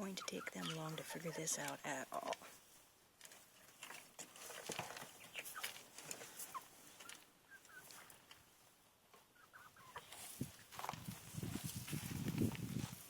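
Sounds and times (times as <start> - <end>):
hens clucking: 0.0 - 2.7, 3.7 - 10.7.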